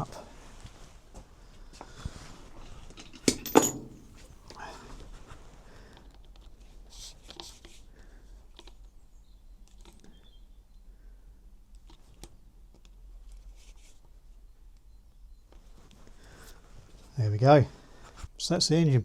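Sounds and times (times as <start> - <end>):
metal parts clicking and scraping: 3.0 - 4.4.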